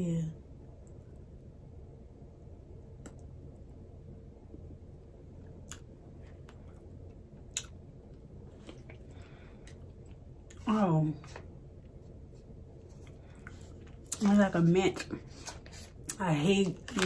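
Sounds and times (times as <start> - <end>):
low room hum: 0.0 - 17.0
faint chewing: 5.4 - 10.6, 11.9 - 14.3.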